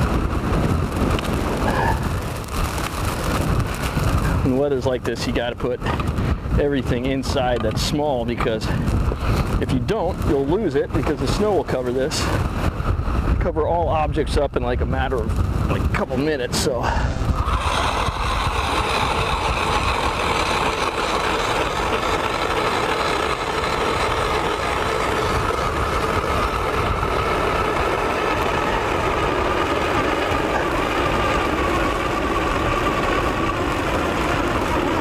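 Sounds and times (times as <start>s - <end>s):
power ice auger drilling: 16.8s - 35.0s.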